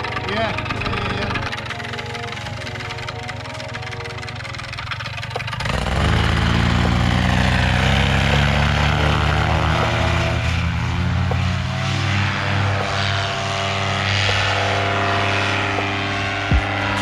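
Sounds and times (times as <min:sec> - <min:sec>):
paramotor engine and propeller: 0:00.0 - 0:17.0.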